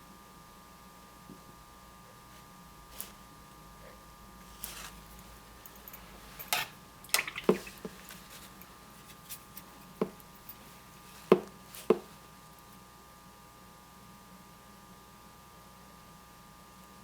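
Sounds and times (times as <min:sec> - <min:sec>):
brush tapping against palette: 0:06.6 - 0:08.4, 0:11.2 - 0:12.2.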